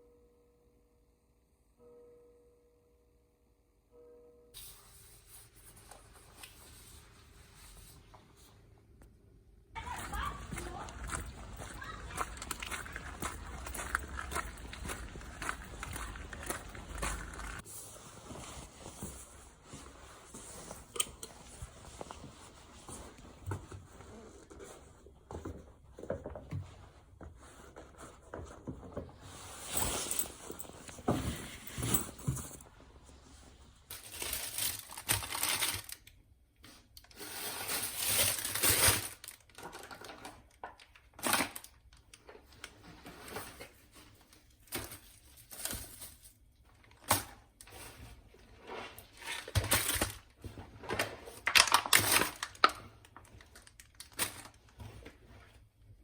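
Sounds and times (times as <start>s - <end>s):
packaging crinkling: 10.4s - 17.7s, 34.0s - 36.0s.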